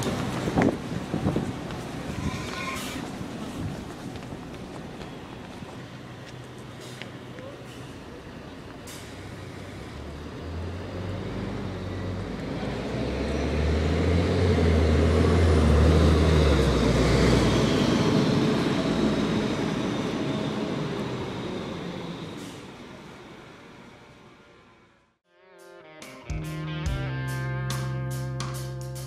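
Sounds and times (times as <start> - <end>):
bus engine driving past: 0.0 - 25.2.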